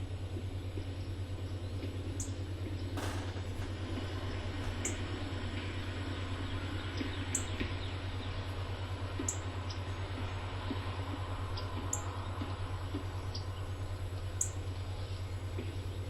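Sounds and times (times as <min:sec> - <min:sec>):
low hum: 0:00.0 - 0:16.0
bird chirps: 0:04.8 - 0:08.6, 0:09.2 - 0:16.0.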